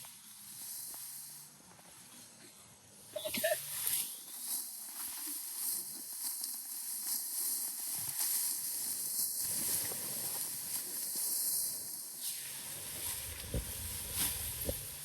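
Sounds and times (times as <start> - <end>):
rice stalks rustling under sickle: 3.6 - 15.0.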